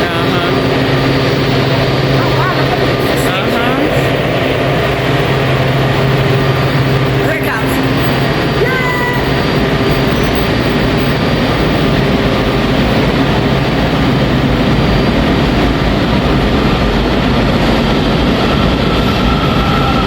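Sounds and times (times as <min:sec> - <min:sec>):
subway train rumbling: 0:00.0 - 0:20.0
high brake squeal: 0:08.0 - 0:11.2.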